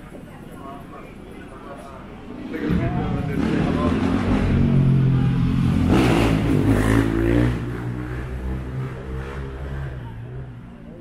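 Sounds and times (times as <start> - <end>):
car engine rumbling: 2.5 - 10.5.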